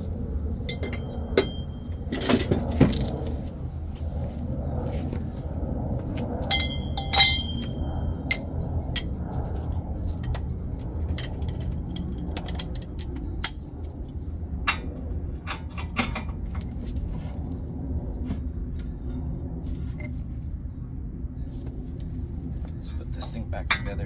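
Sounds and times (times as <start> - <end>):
steady low rumble: 0.0 - 24.0
metal tools clinking: 6.5 - 7.7.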